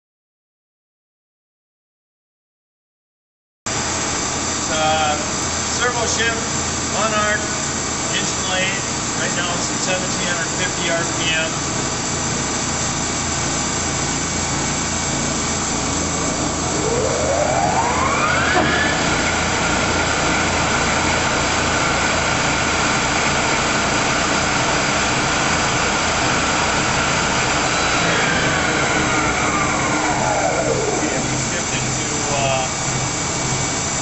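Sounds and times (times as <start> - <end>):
machine hum: 3.8 - 34.0
lathe spindle whine: 4.0 - 34.0.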